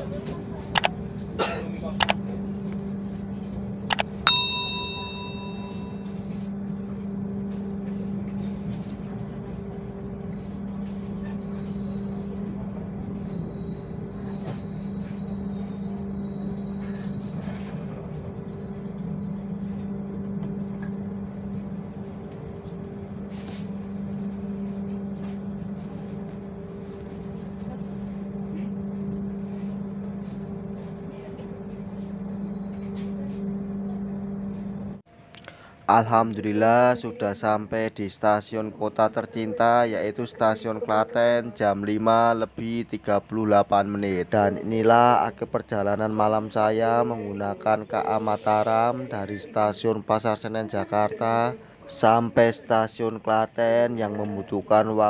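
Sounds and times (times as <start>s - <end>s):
train low hum: 0.0s - 50.5s
bell-like chime: 3.9s - 6.2s.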